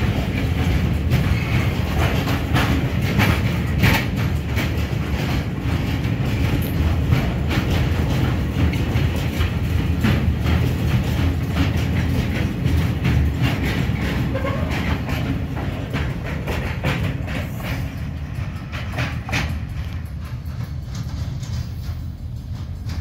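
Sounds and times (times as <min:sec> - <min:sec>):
train low rumble: 0:00.0 - 0:23.0
wheels clacking over rail joints: 0:00.0 - 0:23.0.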